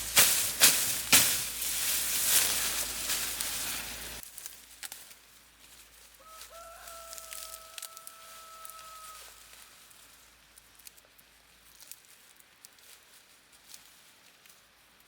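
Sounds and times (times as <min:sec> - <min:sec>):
crackling hiss with snaps: 0:00.0 - 0:05.3, 0:10.4 - 0:15.0
rooster crowing: 0:06.2 - 0:09.7.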